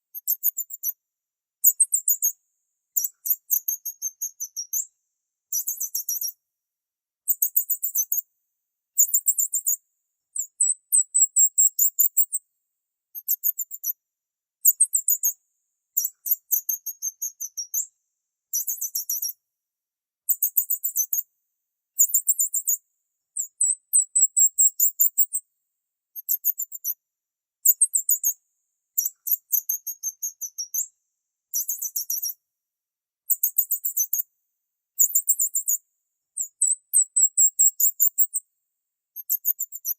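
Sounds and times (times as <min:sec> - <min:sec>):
small bird chirping: 0:00.0 - 0:01.0, 0:01.6 - 0:06.4, 0:07.2 - 0:08.3, 0:09.0 - 0:12.4, 0:13.1 - 0:14.0, 0:14.6 - 0:17.9, 0:18.5 - 0:19.4, 0:20.3 - 0:21.3, 0:22.0 - 0:22.8, 0:23.4 - 0:25.4, 0:26.1 - 0:27.0, 0:27.6 - 0:32.4, 0:33.3 - 0:34.3, 0:35.0 - 0:38.4, 0:39.2 - 0:39.9.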